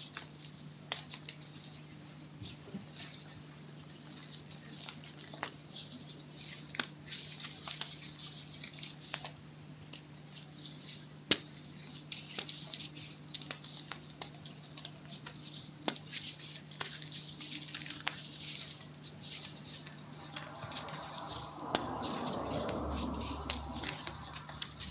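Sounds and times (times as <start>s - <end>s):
chalk crunching and crackling: 0.0s - 24.9s.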